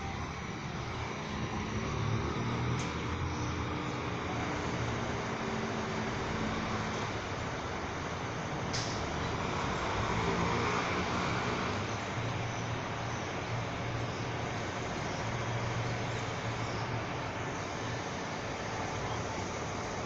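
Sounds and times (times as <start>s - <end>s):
road traffic noise: 0.0s - 20.0s
vehicle passing: 8.9s - 12.5s.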